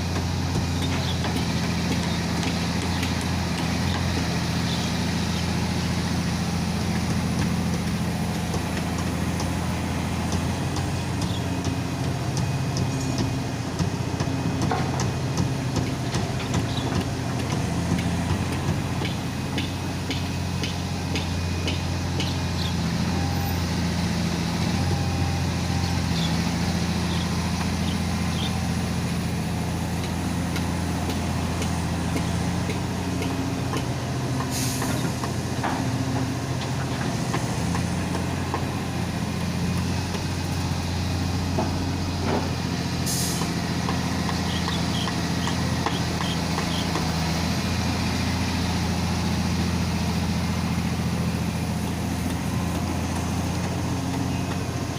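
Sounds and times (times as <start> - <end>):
excavator diesel engine running: 0.0 - 54.9
short sharp air hisses: 34.5 - 35.0.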